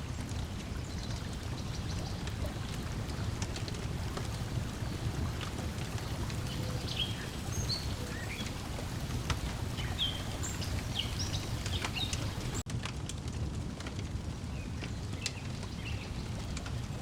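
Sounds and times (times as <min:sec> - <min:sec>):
water lapping: 0:00.0 - 0:12.6
wood fire crackling: 0:00.0 - 0:17.0.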